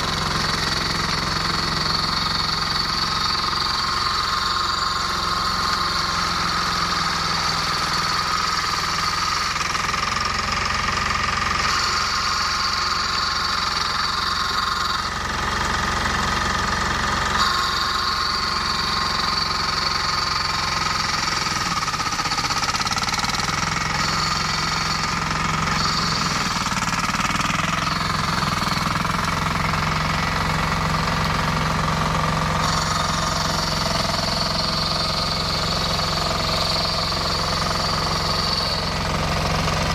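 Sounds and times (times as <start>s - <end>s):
diesel engine clattering: 0.0s - 39.9s
high whine: 17.3s - 39.9s.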